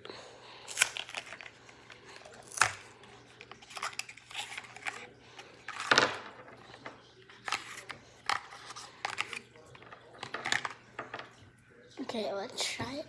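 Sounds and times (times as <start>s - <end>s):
snack packaging rustling: 0.0s - 10.9s
packaging crinkling: 0.6s - 6.8s.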